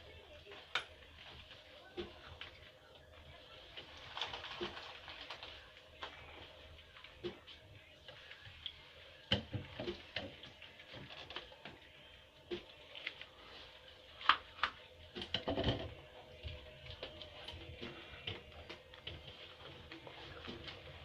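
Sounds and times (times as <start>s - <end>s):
animals tapping and scraping: 14.2s - 21.0s.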